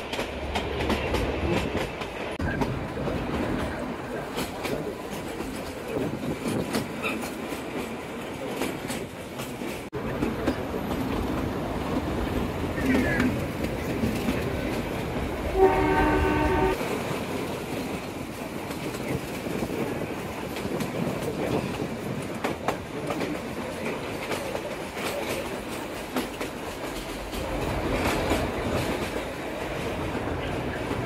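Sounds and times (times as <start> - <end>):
train coaches rattling rumble: 0.0 - 31.0
train horn: 15.5 - 16.8.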